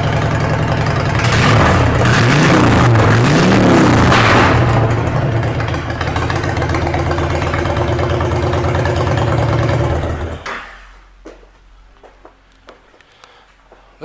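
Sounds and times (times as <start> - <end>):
motorcycle engine idling: 0.0 - 10.5.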